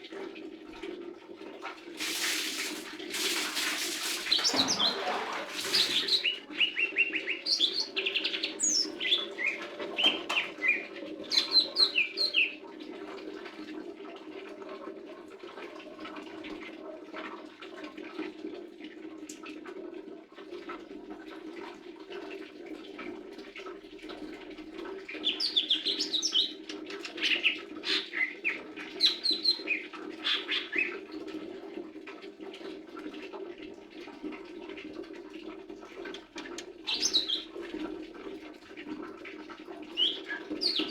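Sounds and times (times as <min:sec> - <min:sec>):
bird chirping and whistling: 0:05.8 - 0:12.5, 0:36.9 - 0:37.4, 0:40.0 - 0:40.9.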